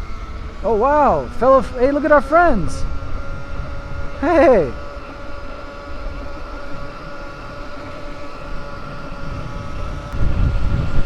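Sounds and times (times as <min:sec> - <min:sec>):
electric motor whine: 0:00.0 - 0:11.0
wind rumbling on microphone: 0:00.0 - 0:11.0.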